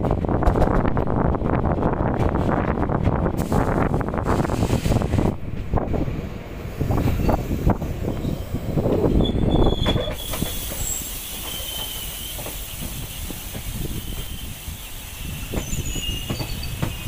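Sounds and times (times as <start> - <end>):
train wheels rumbling over rails: 0.0 - 17.0
train running hiss: 3.3 - 9.2, 10.0 - 17.0
high wheel squeals: 8.1 - 17.0.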